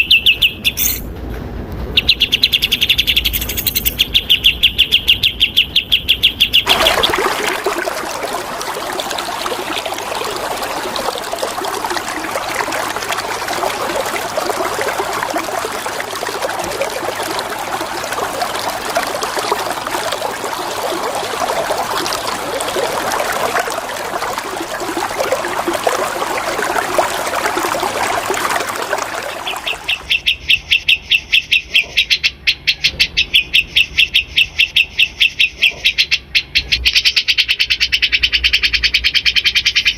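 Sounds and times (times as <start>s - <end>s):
songbird singing: 0.0s - 1.1s, 1.9s - 39.9s
running water: 6.6s - 30.2s.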